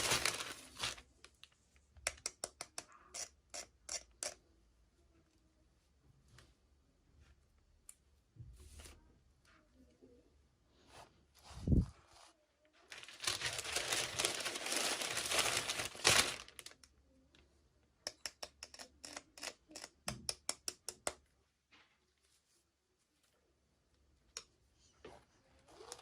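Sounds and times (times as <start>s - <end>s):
plastic crinkling and tearing: 0.0s - 1.5s, 12.9s - 16.9s.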